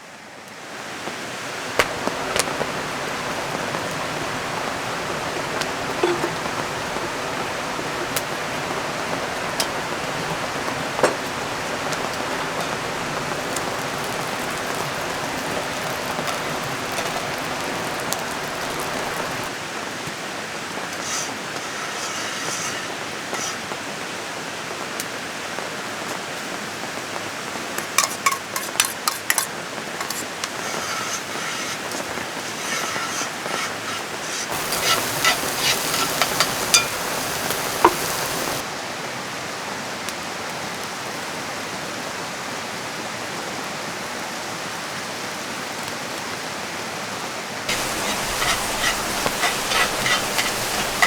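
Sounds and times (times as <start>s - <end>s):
steady rain: 0.0s - 28.6s, 29.5s - 51.0s
river rushing: 1.5s - 19.7s, 34.5s - 38.7s, 47.7s - 51.0s.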